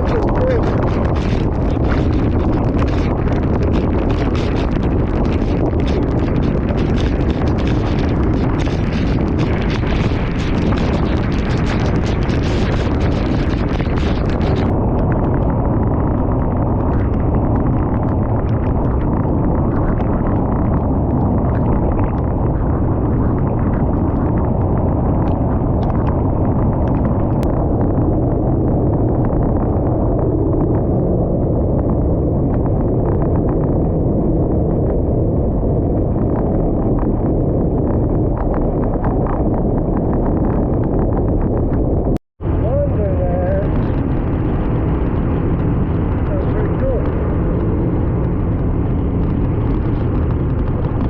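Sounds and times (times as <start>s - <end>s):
scooter ride noise: 0.0s - 25.0s
wind buffeting microphone: 0.0s - 51.0s.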